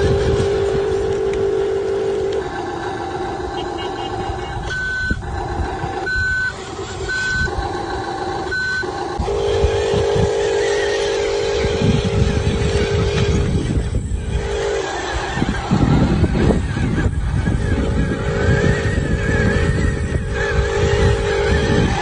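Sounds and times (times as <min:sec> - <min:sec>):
toy motor whine: 0:00.0 - 0:22.0.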